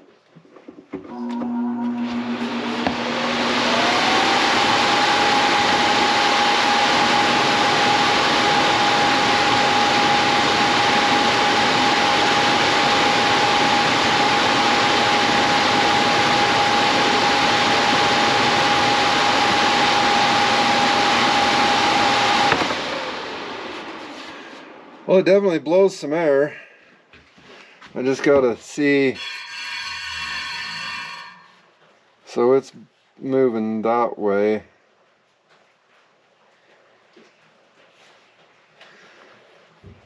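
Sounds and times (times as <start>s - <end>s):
blower fan motor whining: 1.0s - 25.8s.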